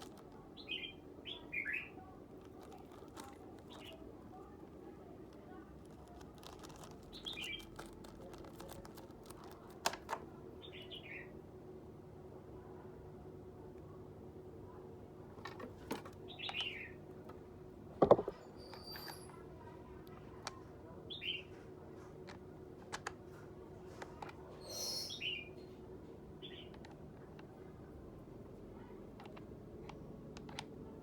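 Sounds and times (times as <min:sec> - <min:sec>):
faint steady hum: 0:00.0 - 0:31.0
high bird chirps: 0:00.6 - 0:02.1, 0:24.6 - 0:25.6
loud knock: 0:18.0 - 0:18.4.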